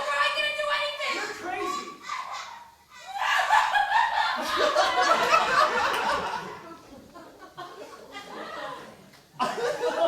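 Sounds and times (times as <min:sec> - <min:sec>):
laughter: 0:02.1 - 0:10.0.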